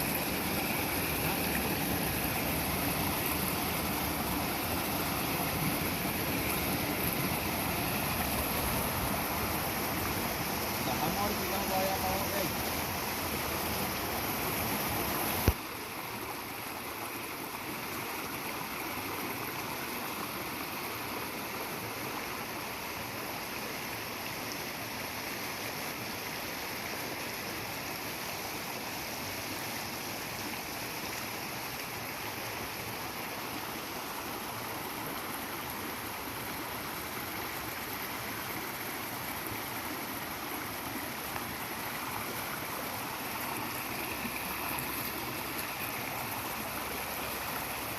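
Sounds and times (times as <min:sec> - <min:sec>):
stream flowing: 0:00.0 - 0:47.9.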